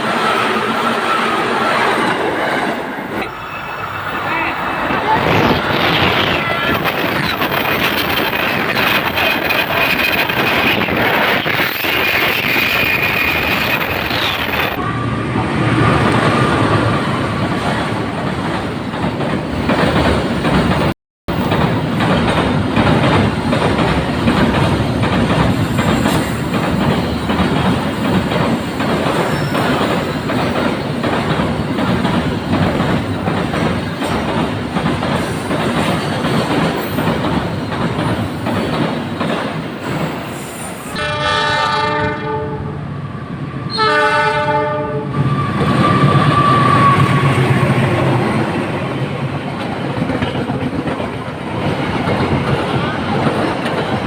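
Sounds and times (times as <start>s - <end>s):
train wheels clattering: 17.6s - 40.4s
train horn: 40.9s - 42.8s, 43.7s - 47.4s.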